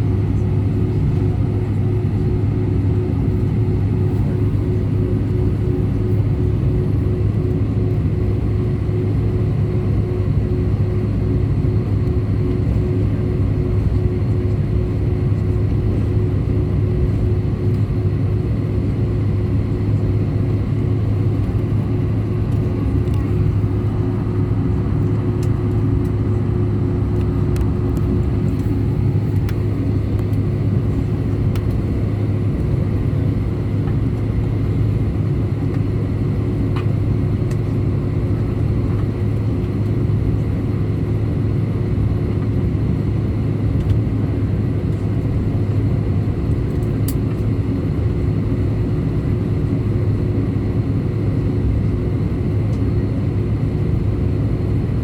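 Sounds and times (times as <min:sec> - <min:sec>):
jet engines drone in cabin: 0:00.0 - 0:55.0.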